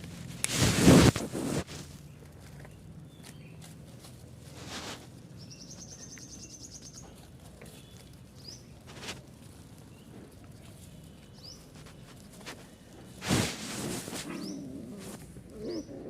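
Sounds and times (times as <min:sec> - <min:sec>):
rustling scuffles: 0:00.0 - 0:02.0, 0:03.2 - 0:05.8, 0:08.4 - 0:15.8
bird trilling and chirping: 0:05.4 - 0:07.1, 0:15.6 - 0:16.0.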